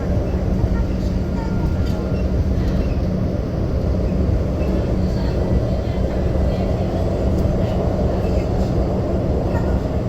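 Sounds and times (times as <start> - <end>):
constant hum: 0.0 - 10.0
tram rumble: 0.0 - 10.0.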